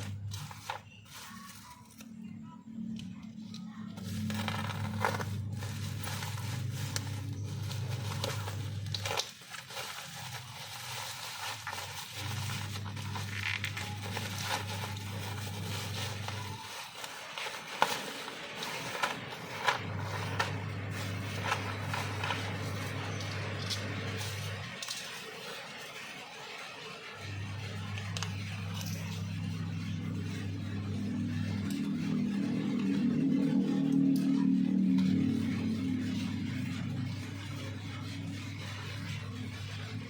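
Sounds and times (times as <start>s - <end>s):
plastic packaging crinkling: 0.0s - 2.9s, 3.8s - 29.6s
low hum: 0.0s - 26.1s, 27.1s - 40.0s.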